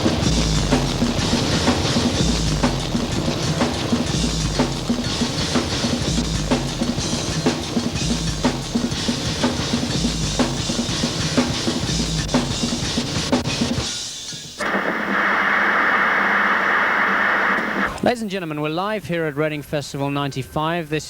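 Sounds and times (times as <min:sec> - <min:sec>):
funk-rock band music: 0:00.0 - 0:14.7.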